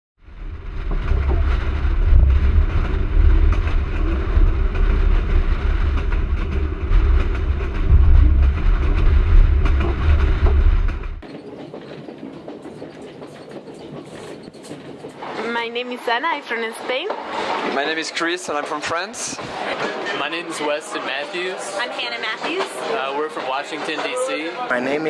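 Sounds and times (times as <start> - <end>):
hum inside train carriage: 0.2 - 11.2
train rumbling along track: 0.2 - 25.0.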